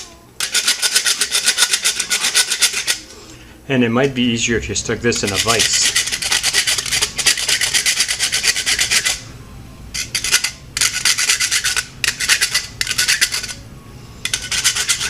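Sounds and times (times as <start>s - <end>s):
wood rasp scraping nylon chew: 0.4s - 3.1s, 5.2s - 9.2s.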